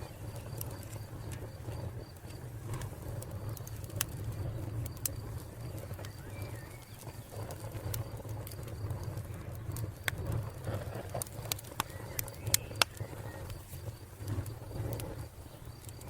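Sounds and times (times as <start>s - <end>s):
cricket chirring: 0.0s - 16.0s
wood fire crackling: 0.0s - 16.0s.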